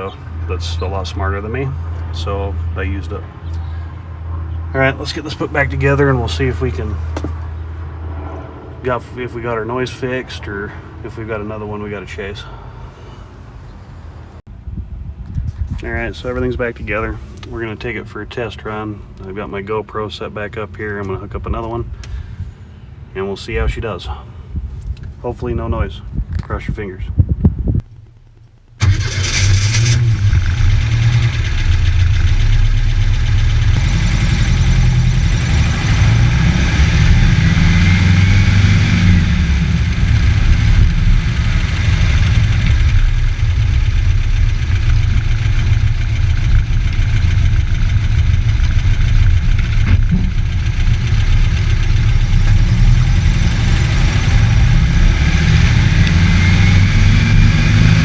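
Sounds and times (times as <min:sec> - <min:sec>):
car engine revving: 0:00.0 - 0:12.0, 0:28.7 - 0:58.0
faint whine rising in pitch: 0:04.3 - 0:10.6.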